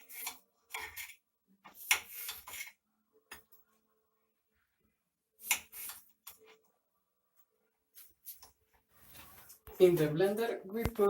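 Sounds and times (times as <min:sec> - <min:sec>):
knife scraping on dishes: 0:00.0 - 0:02.8, 0:05.4 - 0:06.4.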